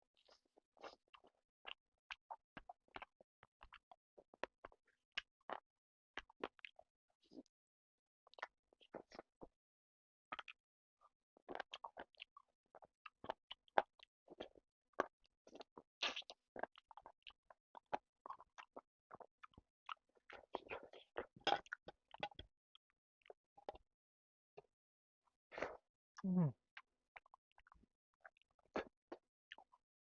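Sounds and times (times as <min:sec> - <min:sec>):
person chewing food: 0:00.2 - 0:05.6, 0:06.2 - 0:07.5, 0:08.3 - 0:09.5, 0:10.3 - 0:10.6, 0:11.4 - 0:23.8, 0:25.6 - 0:25.8, 0:26.8 - 0:29.8.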